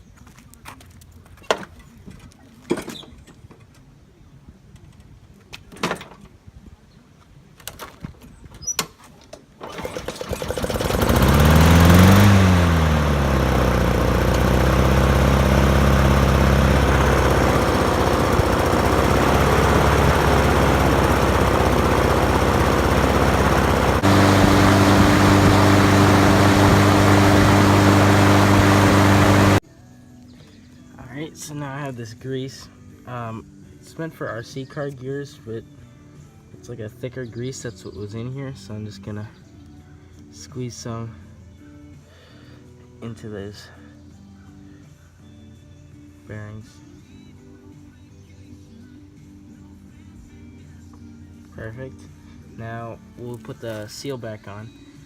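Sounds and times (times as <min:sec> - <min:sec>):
go-kart engine running: 0:09.6 - 0:29.6
crunchy bearing grinding: 0:10.9 - 0:29.6.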